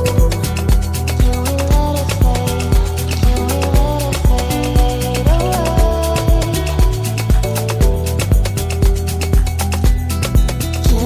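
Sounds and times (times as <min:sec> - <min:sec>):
kick-drum beat: 0:00.0 - 0:11.0
pop music: 0:00.0 - 0:11.0.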